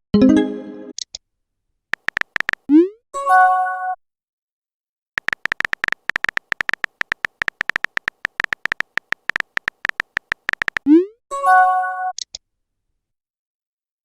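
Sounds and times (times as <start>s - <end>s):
phone keyboard typing clicks: 1.9s - 2.7s, 5.2s - 10.9s.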